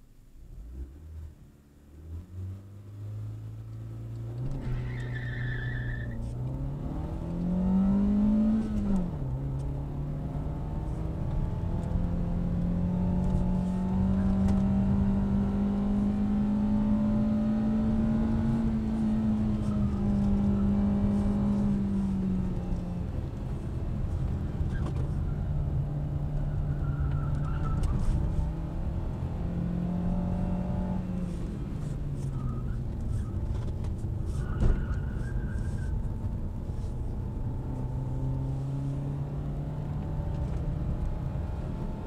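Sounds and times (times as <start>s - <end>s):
car engine accelerating: 0.5s - 42.0s
tyre squeal: 4.6s - 6.4s, 19.0s - 21.8s, 26.4s - 28.5s, 31.8s - 36.2s.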